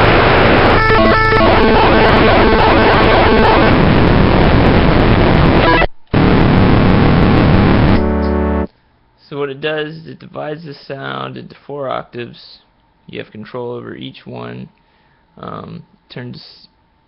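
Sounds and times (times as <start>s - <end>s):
harsh distorted keyboard notes: 0.0s - 8.7s.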